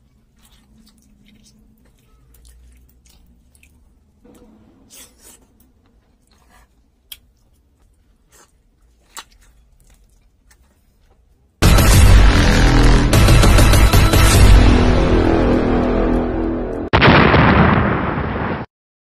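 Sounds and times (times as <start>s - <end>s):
person chewing: 0.0s - 11.6s
loud music with blast effects: 11.6s - 17.0s.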